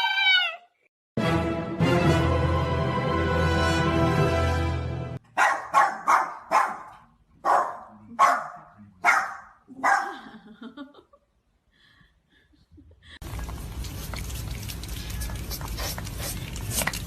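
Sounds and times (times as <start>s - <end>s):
music: 1.2s - 5.2s
dog barking sharply: 5.3s - 10.1s.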